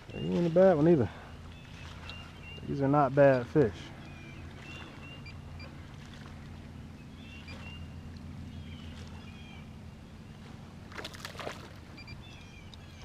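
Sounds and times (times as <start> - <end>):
steady low hum: 0.0 - 13.0
bird chirps: 0.1 - 5.8, 6.9 - 10.5, 11.9 - 13.0.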